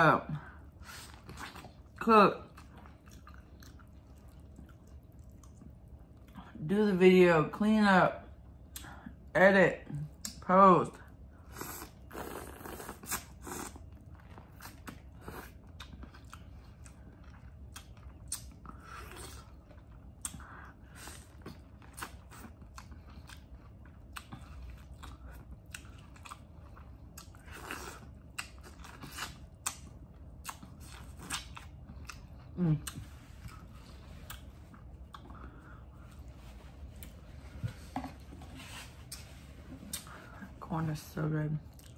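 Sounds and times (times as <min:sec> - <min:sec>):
chewing and lip smacking: 0:00.7 - 0:06.5, 0:11.4 - 0:36.3, 0:39.0 - 0:40.4, 0:41.6 - 0:41.9.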